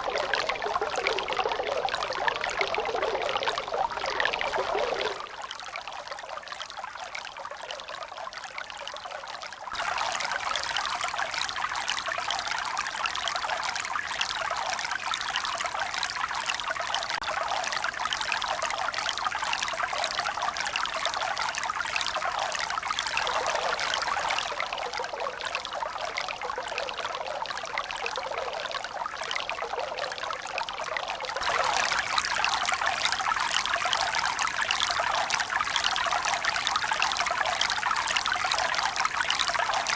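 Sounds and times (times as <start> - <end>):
water running and splashing: 31.4 - 39.9.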